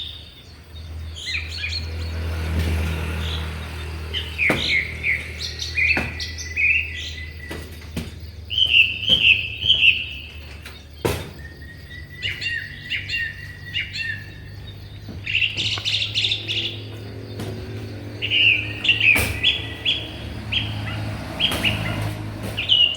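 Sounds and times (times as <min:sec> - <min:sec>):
songbirds chirping and singing: 0:00.0 - 0:22.9
sharp knocks: 0:04.3 - 0:06.4, 0:07.4 - 0:12.5, 0:14.2 - 0:22.9.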